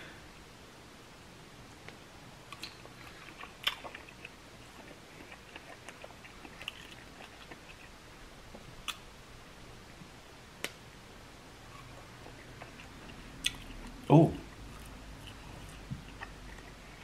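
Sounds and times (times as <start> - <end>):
wet chewing with clicks: 2.5 - 7.9, 11.7 - 17.0.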